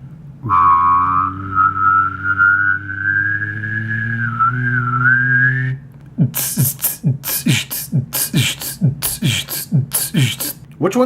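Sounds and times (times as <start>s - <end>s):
low hum: 0.0s - 10.8s
man making whistle-like tone: 0.4s - 10.6s
man beatboxing: 6.0s - 10.7s.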